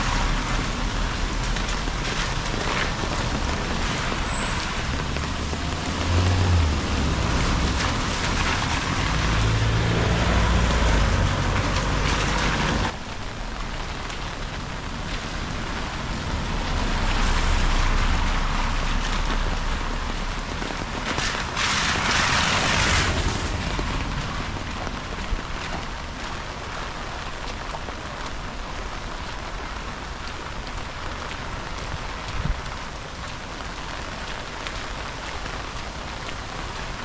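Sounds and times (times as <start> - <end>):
steady rain: 0.0 - 37.0
vehicle passing on wet road: 0.0 - 37.0
loud hiss: 3.8 - 6.5.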